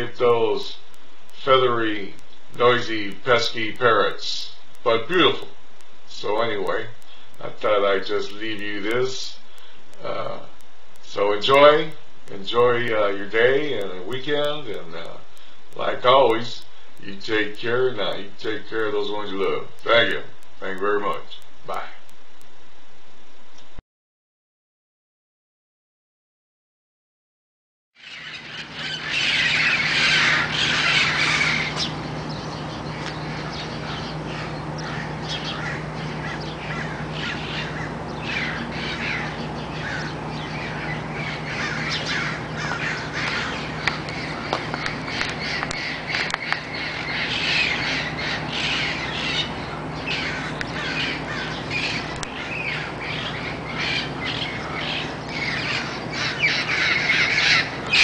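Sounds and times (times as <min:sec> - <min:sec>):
steady low hum: 0:00.0 - 0:23.8, 0:28.0 - 0:58.0
parrots squawking: 0:28.0 - 0:58.0.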